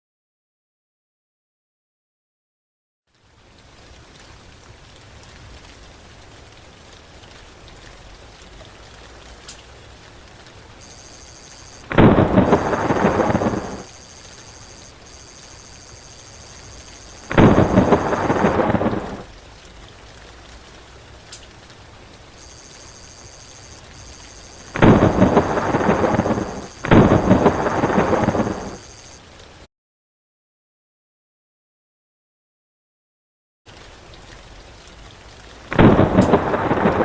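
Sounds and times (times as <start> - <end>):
rain pattering: 3.1 - 29.7, 33.7 - 37.0
thunder claps: 10.8 - 19.3, 22.4 - 29.1, 35.7 - 37.0.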